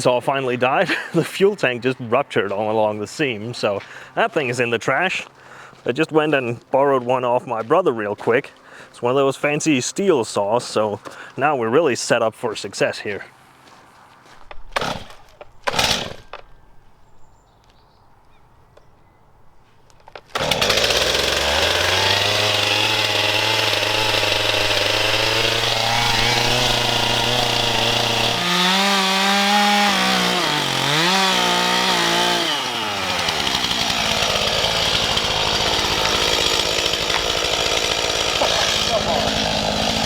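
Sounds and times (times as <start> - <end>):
chainsaw running: 14.8 - 16.4, 20.2 - 40.0.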